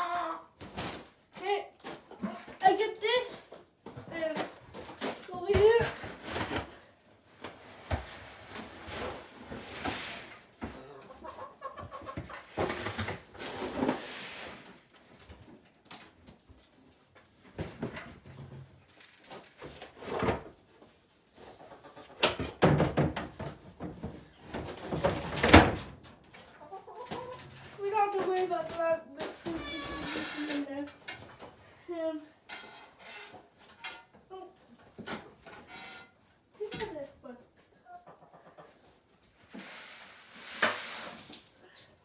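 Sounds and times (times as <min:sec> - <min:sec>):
chickens clucking: 0:10.7 - 0:12.8, 0:20.8 - 0:22.4, 0:26.3 - 0:27.8, 0:37.6 - 0:39.2
rustling and handling noises: 0:17.1 - 0:20.7.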